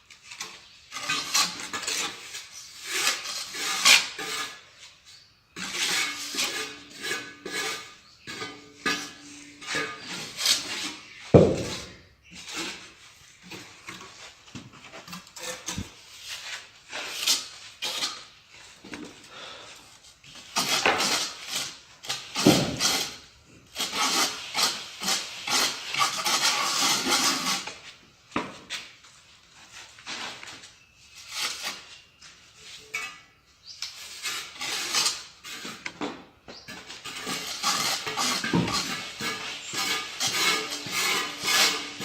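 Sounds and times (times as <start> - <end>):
trowel scraping and tapping tile: 0.2 - 4.6, 5.6 - 19.1, 20.3 - 23.2, 32.7 - 42.0.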